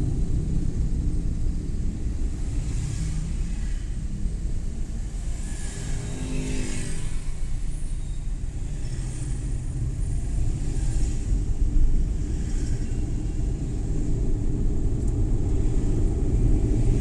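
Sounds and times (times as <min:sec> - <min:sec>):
van engine and tyre rumble: 0:00.0 - 0:17.0.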